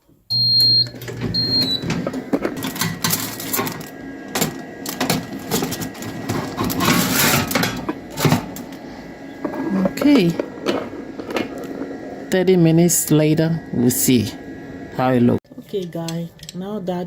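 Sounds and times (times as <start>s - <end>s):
tray clattering into oven: 1.0s - 8.6s.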